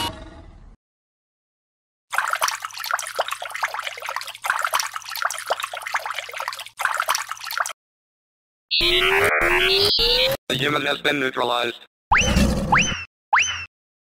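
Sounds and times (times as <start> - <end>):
water fountain splashing: 2.1 - 7.8.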